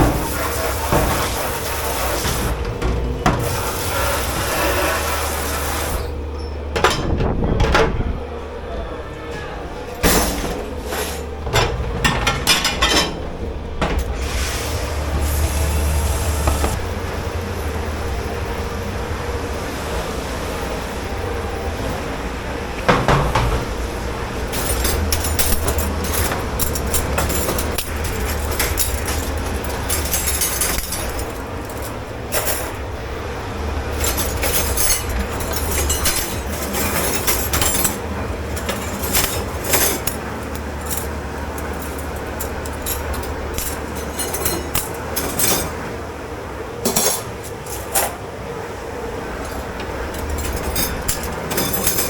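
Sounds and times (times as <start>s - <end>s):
low machine hum: 0.0s - 52.0s
dishes and cutlery clattering: 10.0s - 14.1s, 22.9s - 23.9s, 24.5s - 32.8s, 33.9s - 45.9s, 46.8s - 48.2s, 49.4s - 52.0s.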